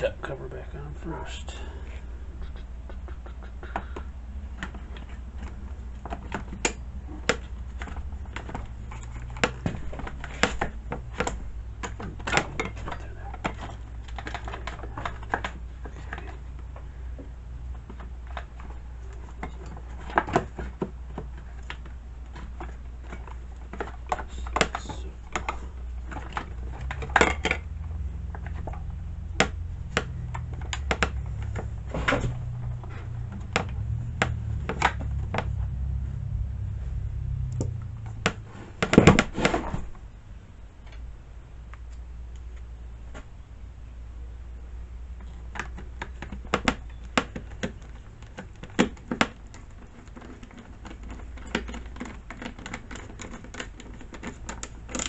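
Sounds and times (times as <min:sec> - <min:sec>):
steady low hum: 0:00.0 - 0:55.0
plastic and metal parts clicking: 0:03.6 - 0:35.7, 0:45.2 - 0:55.0.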